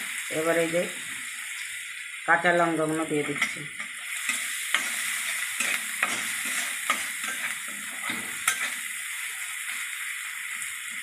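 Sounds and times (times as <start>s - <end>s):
onion sizzling in oil: 0.0s - 11.0s
metal spatula scraping a pan: 3.3s - 9.0s
spatula clinking on a pan: 5.6s - 8.8s.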